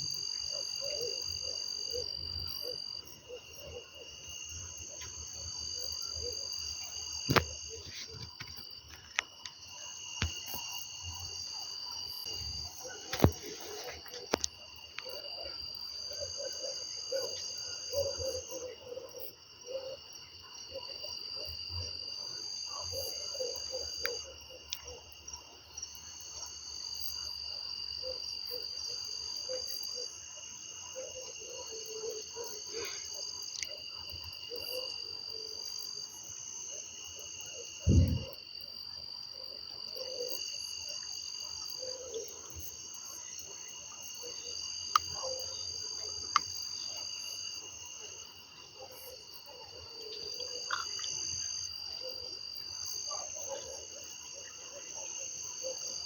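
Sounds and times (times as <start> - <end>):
cricket trills: 0.0 - 56.0
short low thud: 37.9 - 38.3
frogs calling: 39.9 - 56.0.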